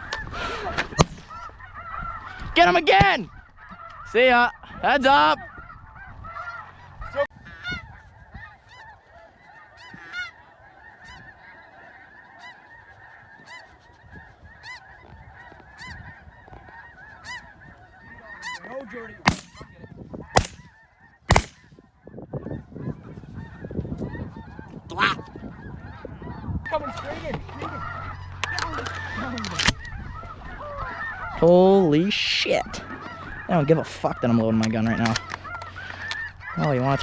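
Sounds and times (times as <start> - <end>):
snow geese calling: 5.2 - 27.0, 27.7 - 31.4, 35.0 - 37.0
shotgun blasts: 19.2 - 19.7, 20.4 - 20.7, 21.3 - 21.8.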